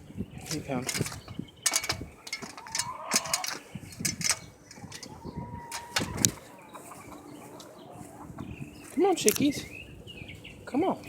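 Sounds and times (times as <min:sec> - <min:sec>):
hens making soft calls: 0:00.0 - 0:11.0
knocks and clicks: 0:00.8 - 0:06.4.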